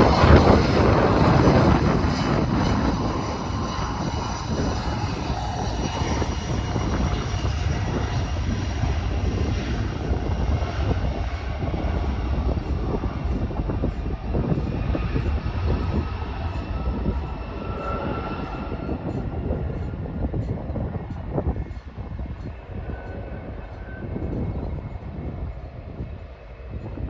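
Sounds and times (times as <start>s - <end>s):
jet engines at high power: 0.0s - 27.0s
wind buffeting microphone: 0.0s - 27.0s.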